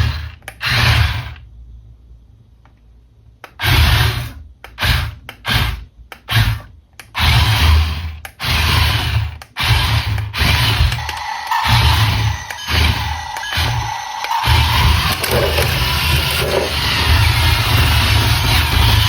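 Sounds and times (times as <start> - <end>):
toy car motor whirring: 3.5 - 19.0.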